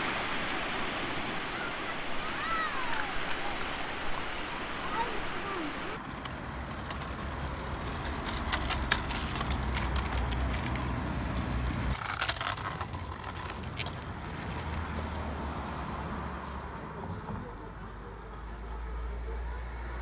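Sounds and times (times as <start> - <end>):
scooter wheels rumbling on asphalt: 0.0 - 16.0.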